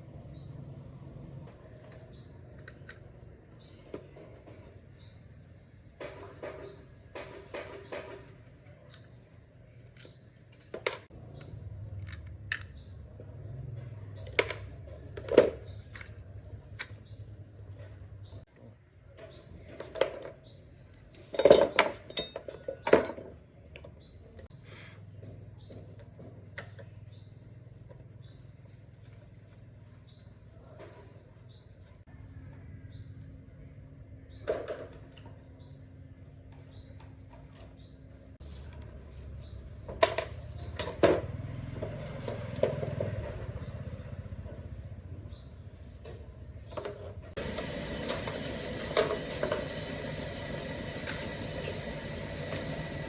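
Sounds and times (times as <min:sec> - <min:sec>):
metal tools clinking: 0:21.3 - 0:23.2.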